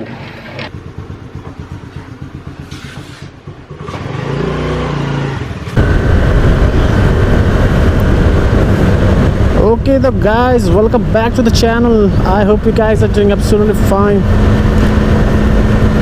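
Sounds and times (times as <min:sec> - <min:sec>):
motorcycle engine revving: 0:00.4 - 0:16.0
wind rush on microphone: 0:05.4 - 0:16.0.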